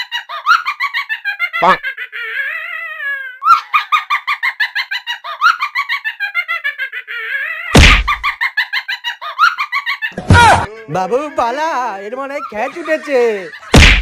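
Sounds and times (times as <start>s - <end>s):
woman giggling: 1.2s - 2.8s, 12.3s - 13.7s
loud thump: 7.8s - 8.2s, 10.2s - 10.7s, 13.8s - 14.0s.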